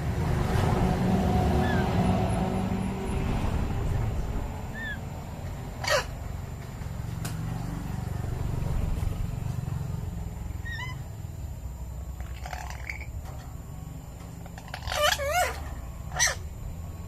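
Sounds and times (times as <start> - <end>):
low background rumble: 0.0 - 17.0
parrot squawk: 1.6 - 2.0, 4.7 - 5.0, 5.8 - 6.2, 10.6 - 11.0, 12.2 - 13.1, 14.4 - 16.4.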